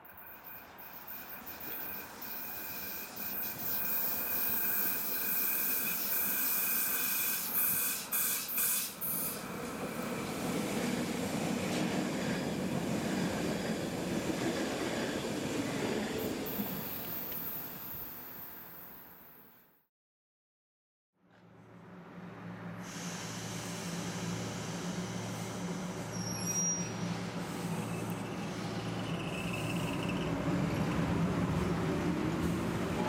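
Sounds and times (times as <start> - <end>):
high squeal from train wheels: 0.0 - 9.6, 16.0 - 19.1, 22.8 - 31.7
train wheels rumbling on rails: 0.0 - 18.3, 22.1 - 33.0.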